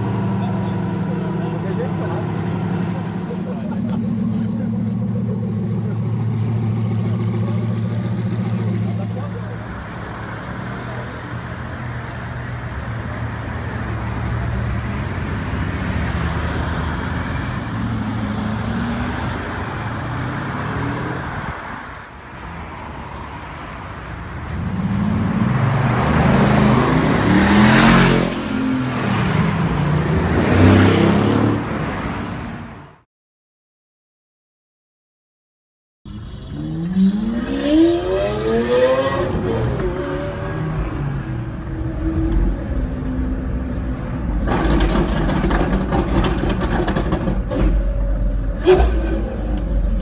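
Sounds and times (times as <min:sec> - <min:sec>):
street traffic: 0:00.0 - 0:33.1, 0:36.1 - 0:50.0
car engine revving: 0:36.1 - 0:50.0.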